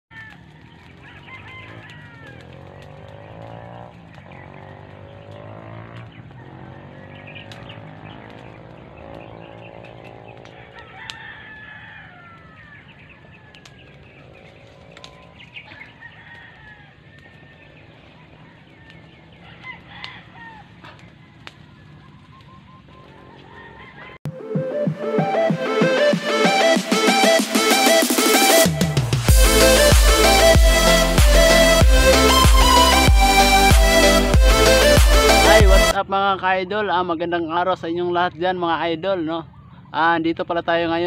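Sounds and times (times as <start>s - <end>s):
birds calling: 0.1s - 41.0s
bird chirps: 6.1s - 10.4s, 20.9s - 23.3s.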